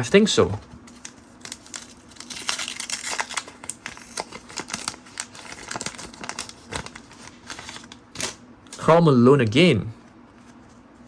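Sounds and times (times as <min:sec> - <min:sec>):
wrapper crinkling: 0:00.8 - 0:08.4.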